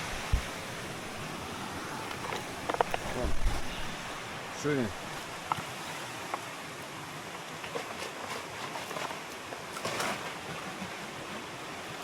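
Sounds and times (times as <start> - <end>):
river water rushing: 0.0 - 12.0
faint knocks and clicks: 2.1 - 3.1.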